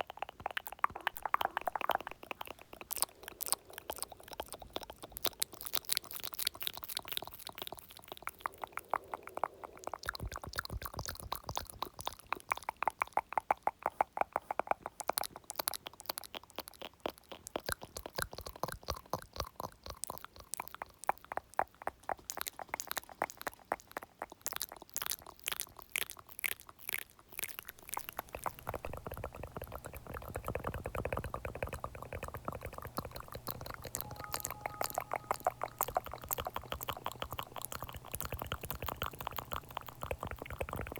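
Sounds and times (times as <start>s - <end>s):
wet mouth clicking and smacking: 0.0s - 40.9s
low steady hum: 0.9s - 10.5s, 27.6s - 40.9s.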